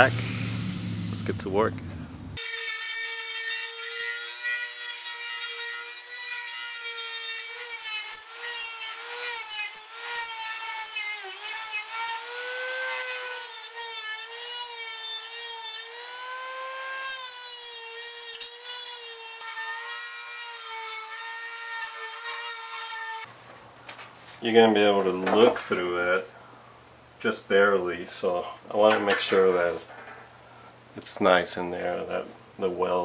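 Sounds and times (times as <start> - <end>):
electric grinder grinding steel: 2.3 - 23.3.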